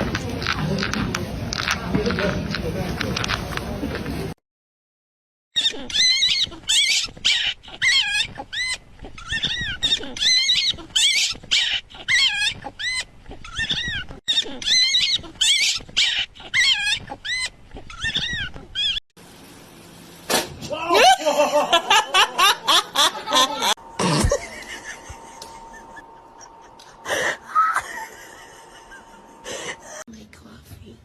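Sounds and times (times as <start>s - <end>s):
animal high-pitched calls: 5.6s - 19.0s.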